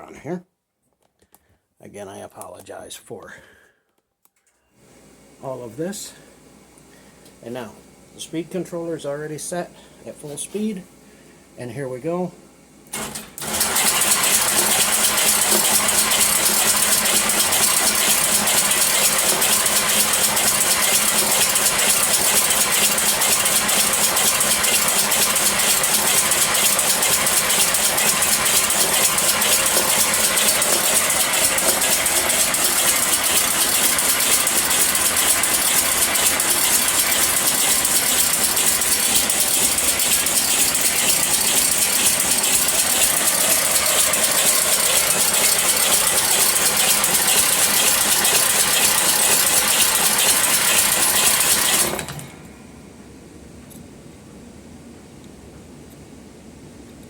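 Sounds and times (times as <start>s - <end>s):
machine mechanical rattle: 12.9s - 52.3s.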